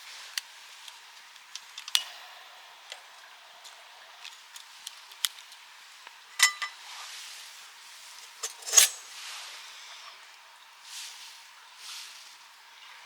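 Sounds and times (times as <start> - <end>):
metal gear clicking and clinking: 8.4 - 9.0.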